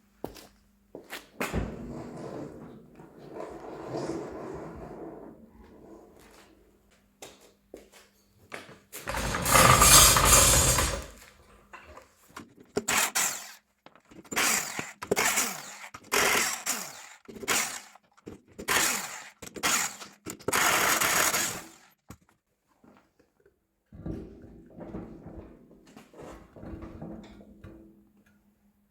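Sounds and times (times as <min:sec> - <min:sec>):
loud mechanical burst: 0:09.1 - 0:11.2
ratcheting strokes: 0:09.1 - 0:11.2.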